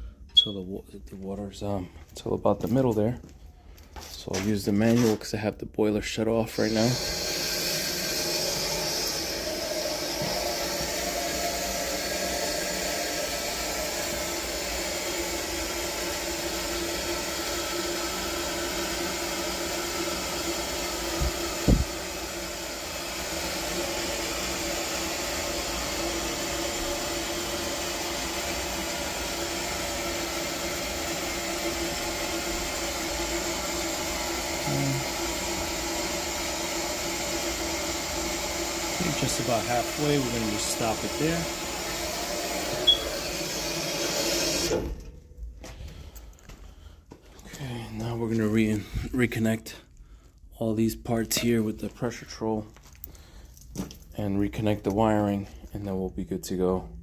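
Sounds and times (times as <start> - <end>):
water running into boiler: 6.3 - 45.1.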